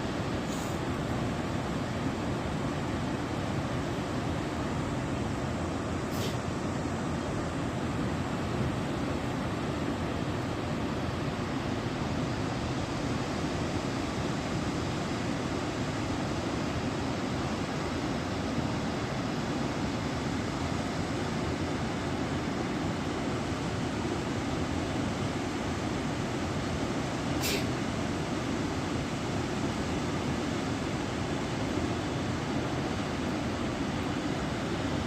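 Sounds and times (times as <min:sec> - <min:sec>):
sharp high hiss: 0:06.1 - 0:06.4, 0:27.4 - 0:27.8.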